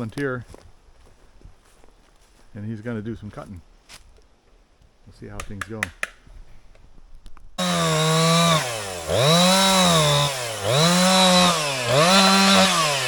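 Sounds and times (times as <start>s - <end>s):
chainsaw cutting into log: 7.6s - 13.0s.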